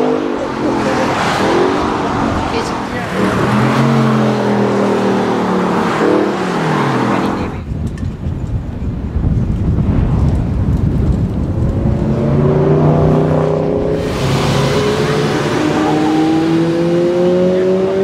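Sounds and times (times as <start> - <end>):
car engine accelerating: 0.0 - 7.6, 11.3 - 18.0
car engines running: 0.0 - 18.0.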